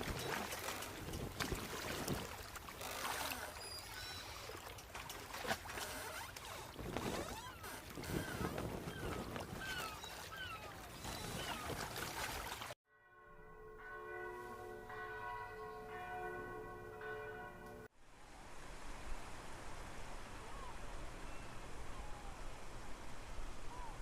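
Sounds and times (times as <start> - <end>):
birds chirping: 2.8 - 4.8, 6.2 - 12.7
church bell ringing: 12.9 - 17.9
steady outdoor hiss: 18.0 - 24.0.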